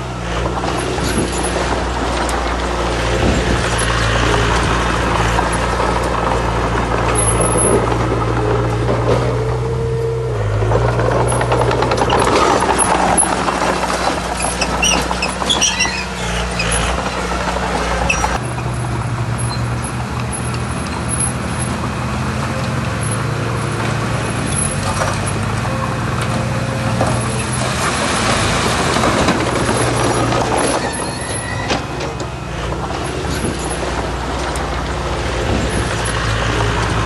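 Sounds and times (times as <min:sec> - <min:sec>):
heavy machinery diesel engines: 0:00.0 - 0:37.0
short high squeaks: 0:14.4 - 0:17.1, 0:29.7 - 0:32.2.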